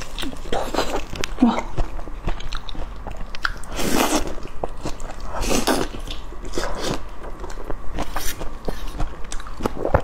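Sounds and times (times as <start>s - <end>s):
close chewing: 0.0s - 10.0s.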